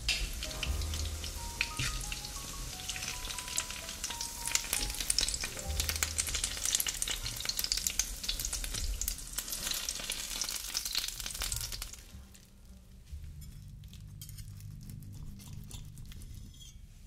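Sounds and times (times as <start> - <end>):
fritters sizzling in oil: 0.0 - 12.1.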